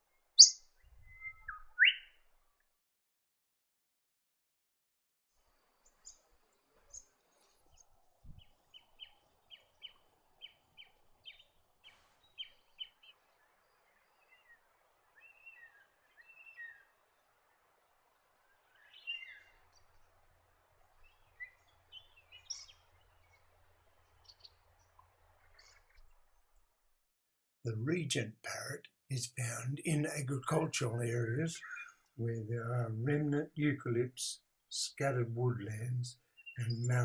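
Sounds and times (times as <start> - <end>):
bird chirps: 0.3 - 2.2, 8.3 - 16.9, 18.7 - 20.0, 21.0 - 23.5, 31.5 - 32.0, 35.6 - 37.0.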